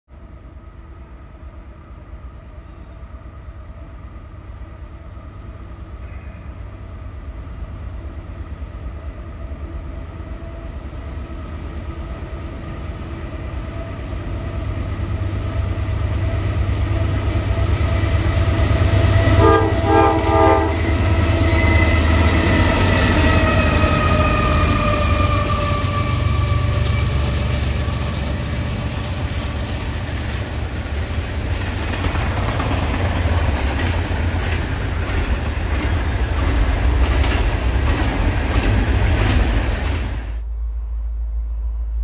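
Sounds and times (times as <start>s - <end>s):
locomotive engine rumble: 0.2s - 42.0s
short horn tones: 19.4s - 20.8s.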